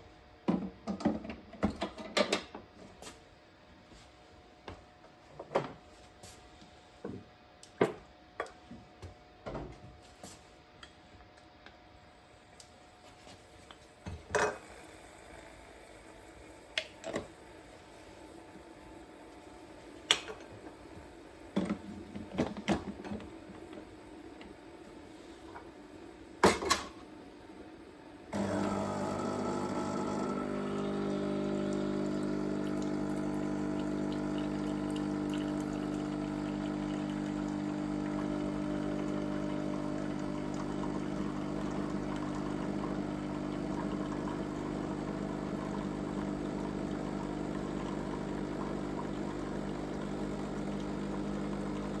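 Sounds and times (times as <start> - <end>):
coffee machine pump humming: 13.9 - 26.7, 28.2 - 52.0.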